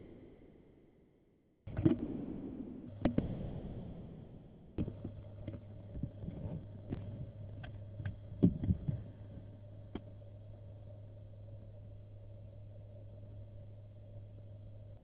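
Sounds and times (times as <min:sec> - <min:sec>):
low hum inside car: 0:01.7 - 0:15.0.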